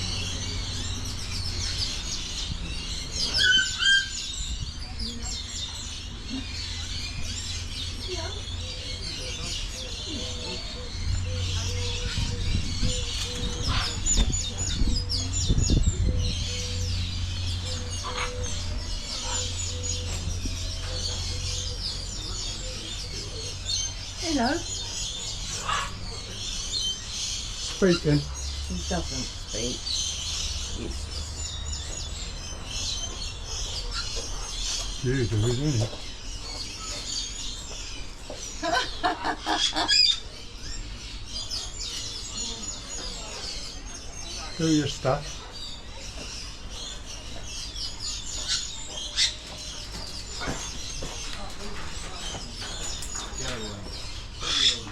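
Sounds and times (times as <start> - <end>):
small birds chirping: 0.0 - 54.9
parrot calls and squawk: 3.0 - 4.4, 16.2 - 22.2, 25.4 - 28.5.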